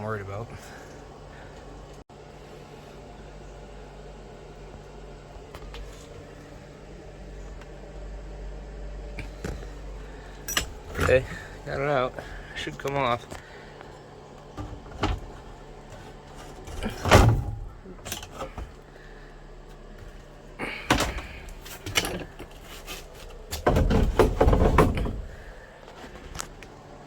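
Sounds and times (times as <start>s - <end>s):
panel scraping rattle: 14.5s - 18.8s, 20.7s - 25.7s
plastic panel knocks and clatters: 23.5s - 25.4s.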